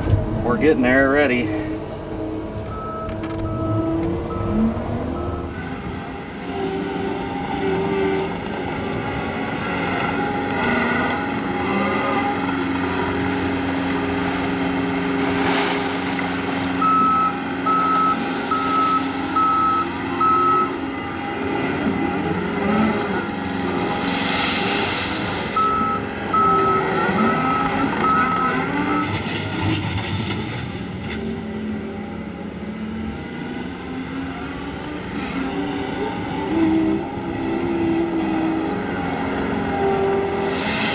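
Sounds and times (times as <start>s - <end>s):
backup alarm beeping: 0.0s - 5.6s, 16.8s - 20.8s, 25.6s - 28.6s
diesel engine running: 0.0s - 6.0s, 8.4s - 29.6s.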